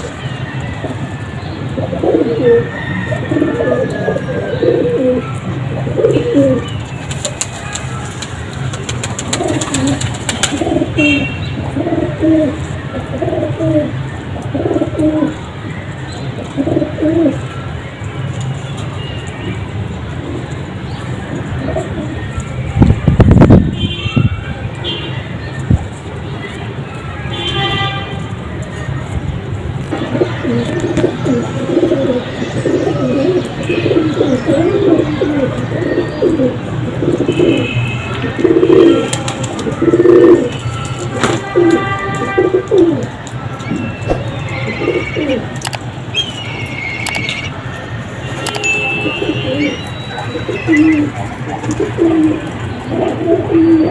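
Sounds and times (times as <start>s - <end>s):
pigeons cooing: 1.6s - 7.6s, 8.7s - 15.5s, 16.3s - 17.5s, 21.2s - 22.4s, 29.8s - 45.7s, 48.9s - 53.9s.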